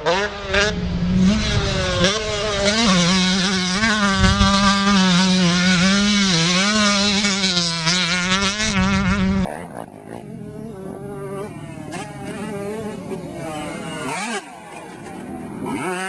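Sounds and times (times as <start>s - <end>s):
two-stroke motocross bike engine: 0.0s - 16.0s.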